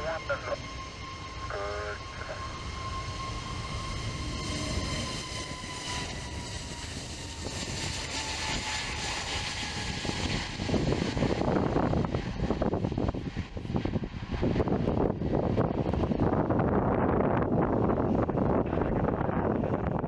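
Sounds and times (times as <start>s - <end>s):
jet engines at take-off power: 0.0s - 20.0s
wind buffeting the microphone: 3.0s - 20.0s.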